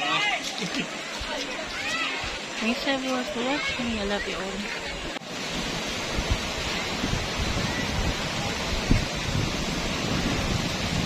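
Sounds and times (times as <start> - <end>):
waterfall rushing: 0.0 - 11.0
wind buffeting microphone: 3.4 - 11.0.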